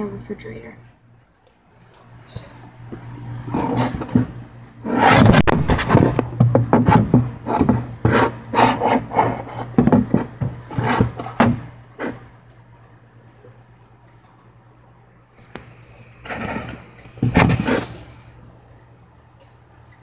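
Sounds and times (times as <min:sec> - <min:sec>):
steady low hum: 0:00.0 - 0:20.0
rubbing and scraping strokes: 0:03.5 - 0:06.2, 0:06.8 - 0:11.4, 0:16.2 - 0:18.1.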